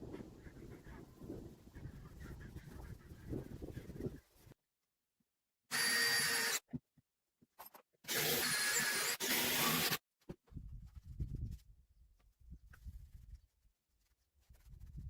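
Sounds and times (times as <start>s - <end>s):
power drill running: 5.7s - 6.6s, 8.1s - 10.0s.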